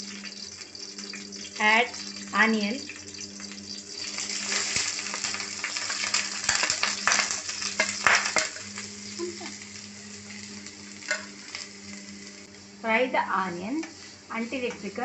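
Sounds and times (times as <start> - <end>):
onion sizzling in oil: 0.0 - 15.0
spoon scraping a pan: 3.0 - 9.2, 10.3 - 12.2.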